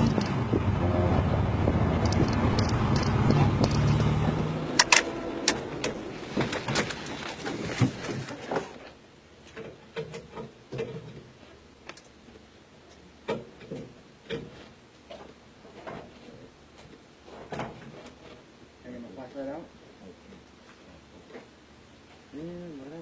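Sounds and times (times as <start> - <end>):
vehicle noise: 0.0 - 8.8
small clicks and knocks: 2.0 - 4.2.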